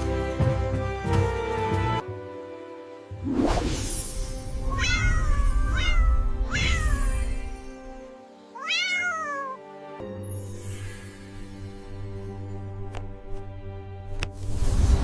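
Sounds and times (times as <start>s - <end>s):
background music: 0.0s - 15.0s
cat meowing: 4.7s - 7.5s, 8.6s - 9.6s.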